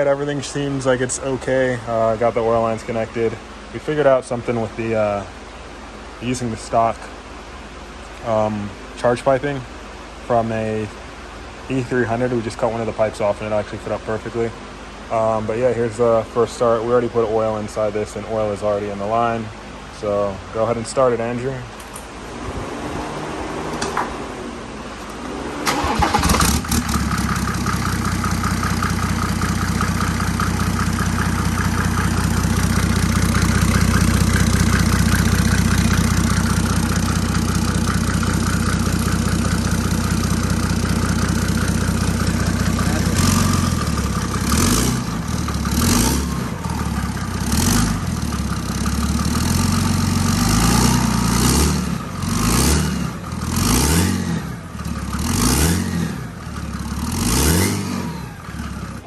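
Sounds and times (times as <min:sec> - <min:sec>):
diesel engine starting and idling: 0:00.0 - 0:20.4, 0:21.1 - 0:59.0
diesel engine revving: 0:22.2 - 0:59.0.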